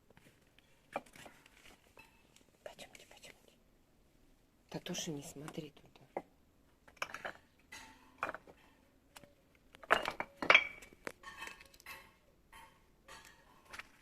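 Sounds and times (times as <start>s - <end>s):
hard objects clinking and knocking: 6.9s - 8.8s, 9.7s - 14.0s.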